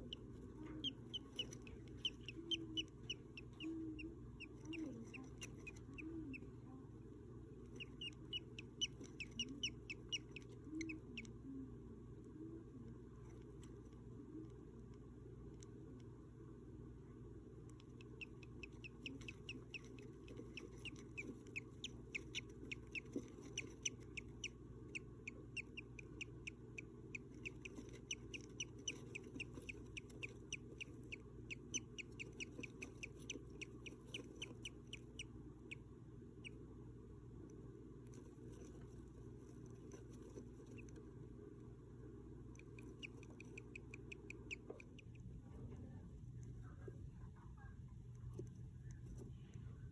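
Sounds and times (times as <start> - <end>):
bird chicks cheeping: 0.0 - 6.4, 7.8 - 11.3, 18.1 - 35.3, 42.9 - 45.0
steady low hum: 0.0 - 49.9.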